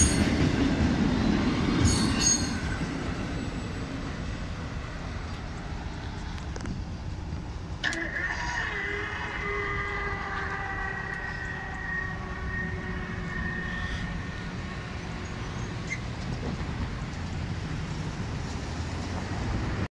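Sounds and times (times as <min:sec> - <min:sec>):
freight train rumbling: 0:00.0 - 0:19.9
train horn: 0:11.2 - 0:15.3.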